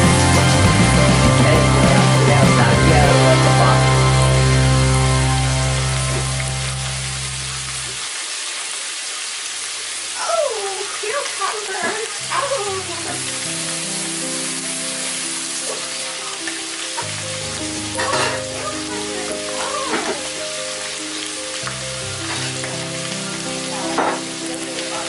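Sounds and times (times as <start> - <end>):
background music of held chords: 0.0 - 7.9, 12.8 - 25.0
meat sizzling in a pan: 0.0 - 25.0.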